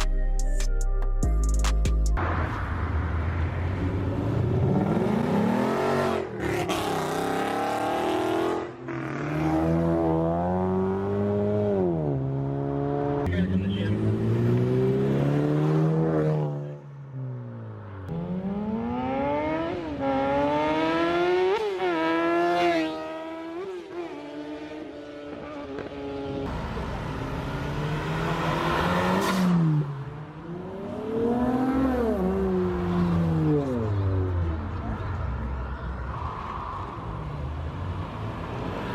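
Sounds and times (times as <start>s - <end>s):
car engine revving: 18.1s - 34.9s.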